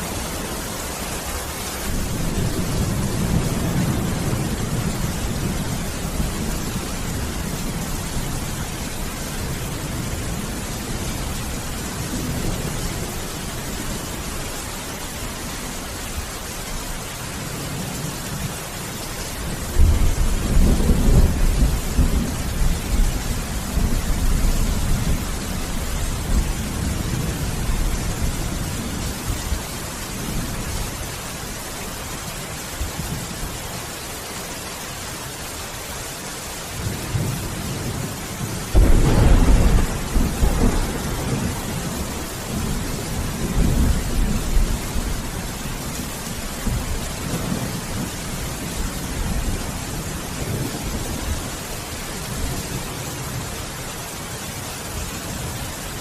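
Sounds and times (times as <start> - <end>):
steady rain: 0.0 - 56.0
thunder rumbling: 1.7 - 14.3, 19.5 - 31.0, 36.8 - 51.6
sharp thunderclap: 38.7 - 44.7.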